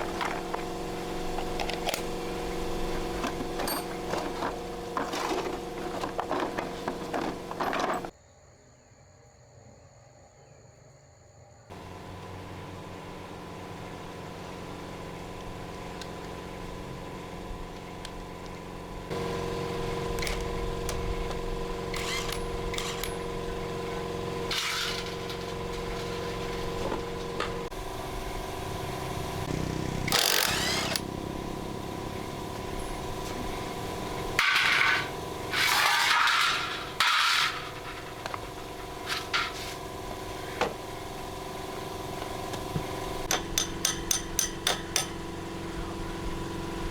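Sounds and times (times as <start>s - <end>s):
harsh tool noise bursts: 0.0s - 8.1s, 11.7s - 46.9s
mechanical hum: 0.0s - 8.1s, 11.5s - 46.9s
sharp clicks: 30.1s - 31.1s.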